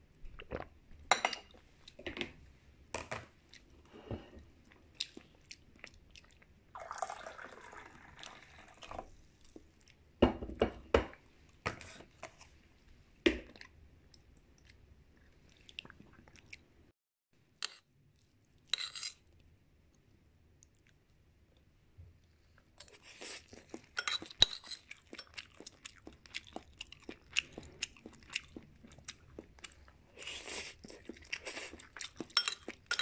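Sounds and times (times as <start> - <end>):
close chewing with mouth clicks: 4.7 - 6.6, 22.5 - 33.0.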